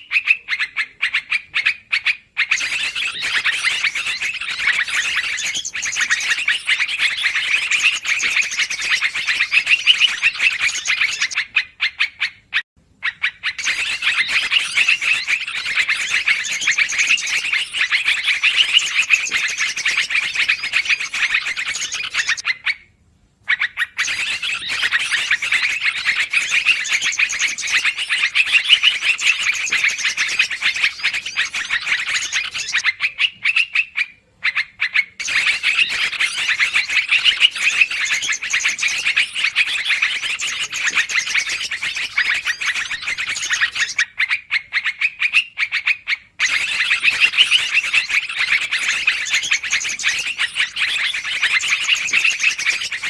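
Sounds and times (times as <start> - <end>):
bulbuls chattering: 0.0 - 11.6, 13.1 - 22.4, 35.2 - 44.0.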